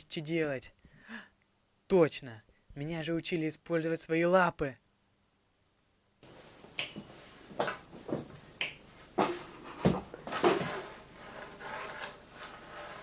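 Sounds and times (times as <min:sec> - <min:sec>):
objects clattering onto floor: 0:09.2 - 0:11.0.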